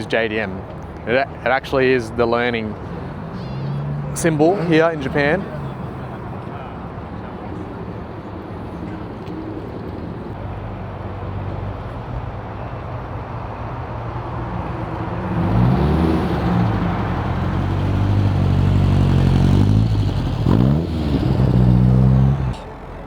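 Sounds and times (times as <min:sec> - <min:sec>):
car engine revving: 0:02.6 - 0:06.4, 0:14.3 - 0:23.0.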